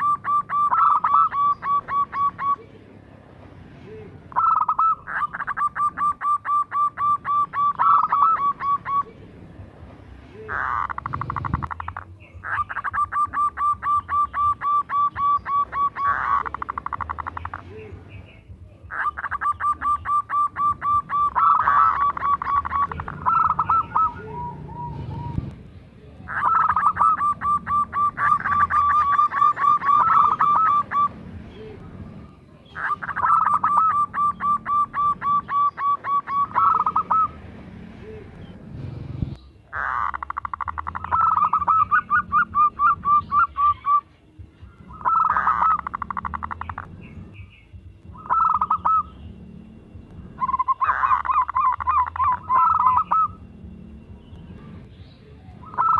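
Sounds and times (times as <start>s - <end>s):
dove cooing: 0.0s - 2.8s, 4.0s - 9.3s, 10.5s - 17.9s, 18.9s - 25.5s, 26.2s - 37.4s, 39.7s - 44.1s, 44.8s - 46.9s, 48.1s - 49.2s, 50.4s - 53.4s, 55.6s - 55.9s.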